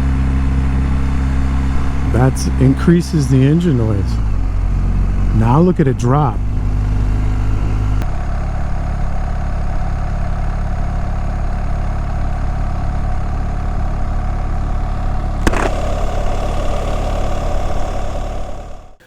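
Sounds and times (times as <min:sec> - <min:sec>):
motorcycle engine running: 0:00.0 - 0:19.0
road and wind noise: 0:00.0 - 0:19.0
sharp click: 0:15.4 - 0:16.8.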